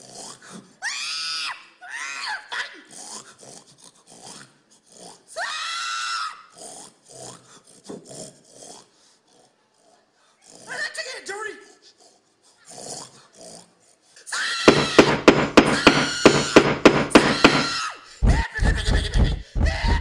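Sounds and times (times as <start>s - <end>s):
pig squealing: 14.4s - 18.6s.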